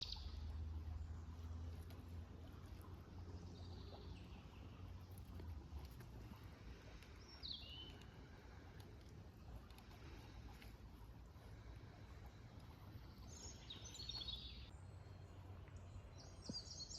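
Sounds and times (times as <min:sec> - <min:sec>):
bird calls: 0:02.7 - 0:08.7, 0:13.0 - 0:16.9.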